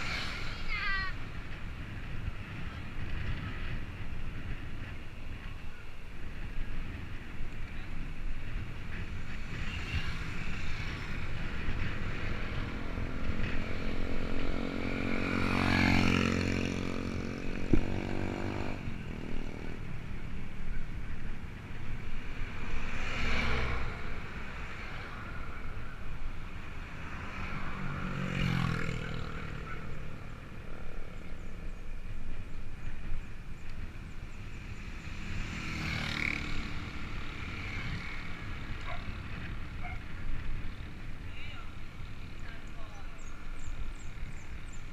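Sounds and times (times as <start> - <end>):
steady rushing road noise: 0.0 - 44.9
vehicles passing: 0.0 - 44.9.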